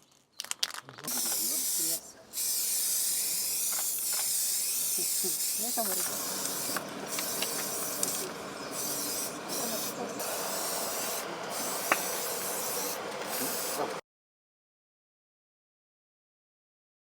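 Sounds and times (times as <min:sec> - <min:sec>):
steady hissing noise: 0:01.1 - 0:14.0.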